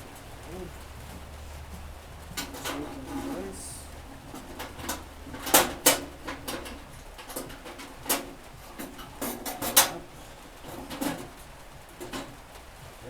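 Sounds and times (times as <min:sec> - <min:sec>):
metal camp stove clicks and knocks: 0:02.4 - 0:03.2, 0:04.3 - 0:12.5.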